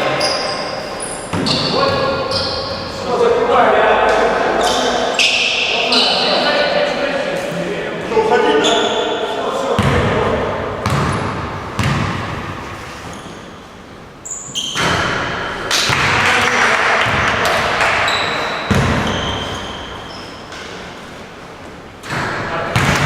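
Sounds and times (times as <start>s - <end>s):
sneakers squeaking: 0.0s - 3.0s, 4.1s - 6.7s, 8.5s - 9.2s, 9.8s - 16.2s, 17.0s - 23.0s
players' voices: 0.0s - 12.5s, 15.7s - 23.0s
basketball bouncing on court: 1.3s - 2.5s, 9.8s - 12.6s, 17.0s - 19.7s, 22.1s - 23.0s.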